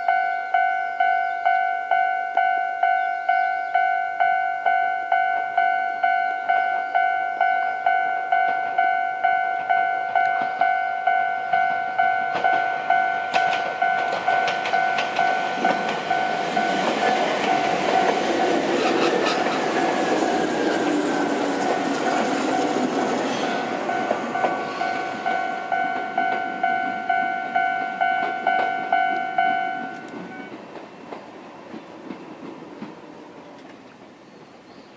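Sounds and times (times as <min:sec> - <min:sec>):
level crossing bell ringing: 0:00.0 - 0:18.7, 0:22.4 - 0:30.5
train wheels clicking over rail joints: 0:12.0 - 0:34.0.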